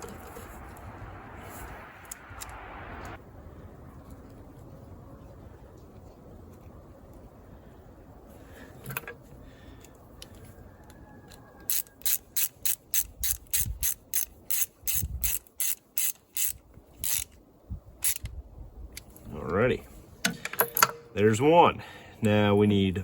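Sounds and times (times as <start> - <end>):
hand ratchet clicking: 11.7 - 17.4, 18.0 - 18.3.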